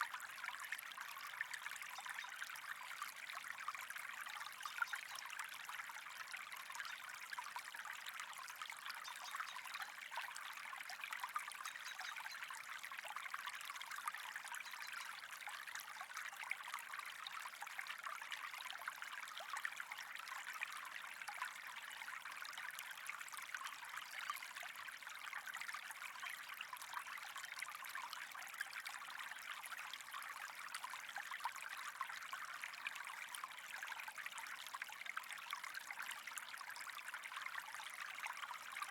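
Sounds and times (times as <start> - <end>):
trickling flowing water: 0.0 - 38.9.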